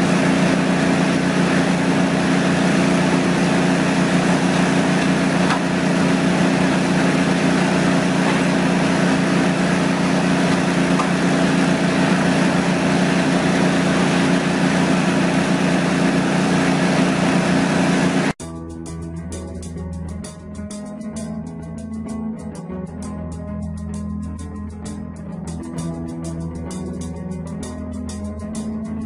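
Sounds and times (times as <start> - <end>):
engine running under load: 0.0 - 18.4
guitar music: 0.0 - 29.0.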